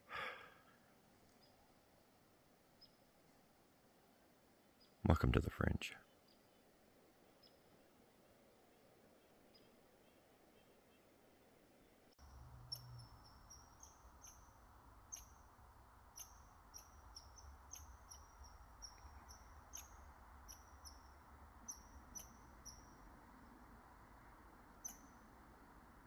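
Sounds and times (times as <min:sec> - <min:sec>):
low steady hum: 0:06.5 - 0:26.0
small animal chirping: 0:12.3 - 0:15.5, 0:16.1 - 0:23.0, 0:24.8 - 0:25.2.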